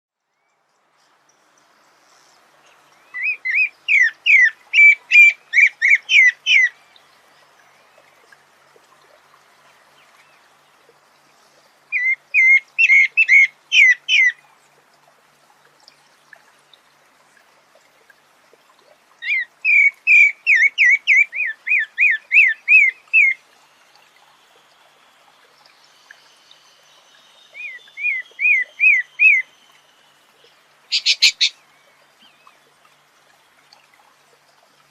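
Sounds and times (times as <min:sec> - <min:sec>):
songbird whistling: 0:27.5 - 0:29.5, 0:30.9 - 0:31.6.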